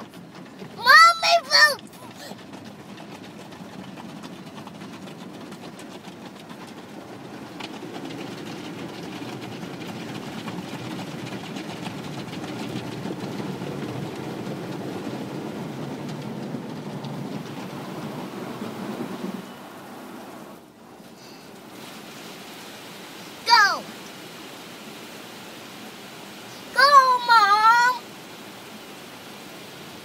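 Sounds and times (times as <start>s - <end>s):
car wash spray and brushes: 0.0s - 30.0s.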